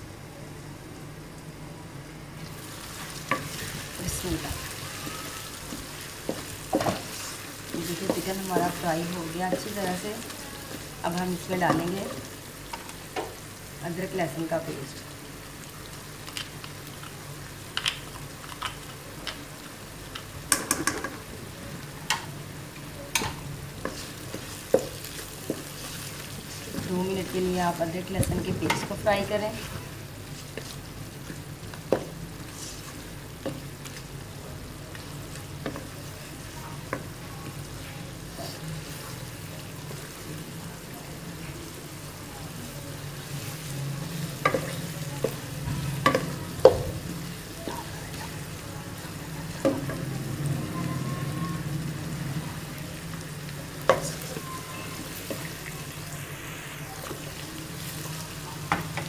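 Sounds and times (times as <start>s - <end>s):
chicken sizzling in oil: 2.4s - 59.0s
wooden spatula knocking on pan: 7.8s - 8.8s.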